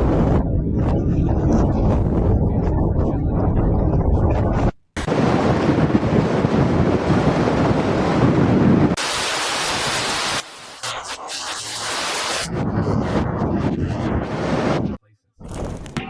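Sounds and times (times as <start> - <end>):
wind and rain roar: 0.0 - 10.6.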